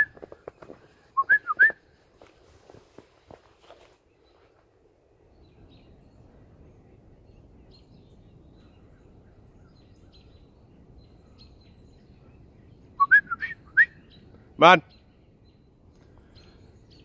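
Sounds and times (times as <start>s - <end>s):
songbird chirps: 0.0s - 17.0s.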